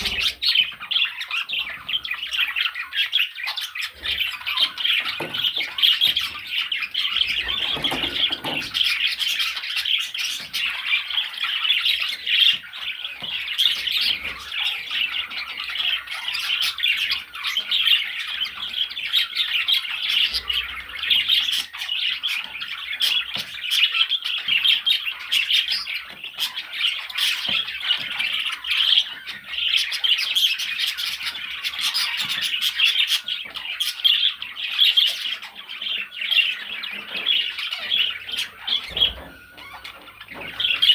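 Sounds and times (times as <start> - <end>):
budgerigars chattering and squawking: 0.0 - 40.9.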